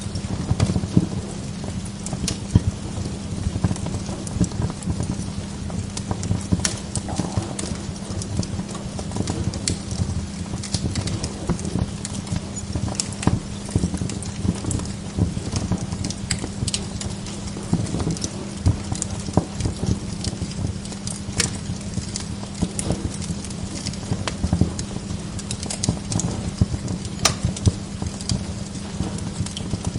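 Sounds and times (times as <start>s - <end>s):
log fire crackling: 0.0s - 29.9s
low hum: 6.0s - 12.4s.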